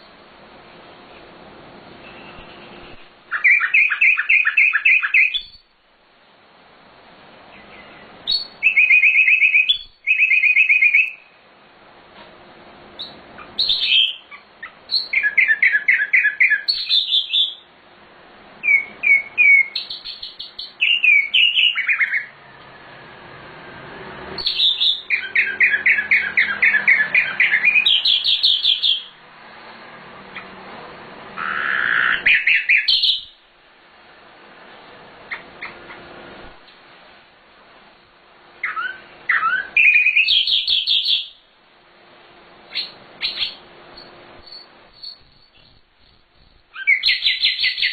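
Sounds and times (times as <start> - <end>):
bird singing trills and whistles: 3.3 - 5.7, 7.5 - 11.4, 13.0 - 17.7, 18.6 - 22.4, 24.4 - 29.2, 31.4 - 33.4, 38.6 - 41.4, 42.7 - 47.9.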